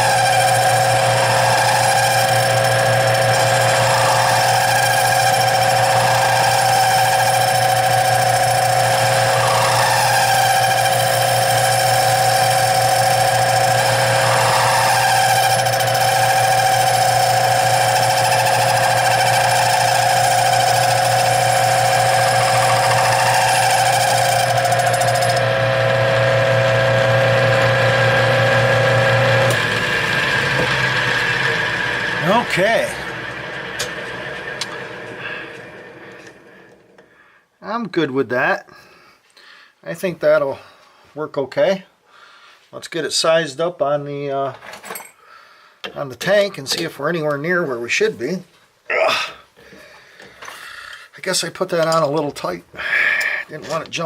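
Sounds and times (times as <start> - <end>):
metal lathe whining: 0.0 - 37.1.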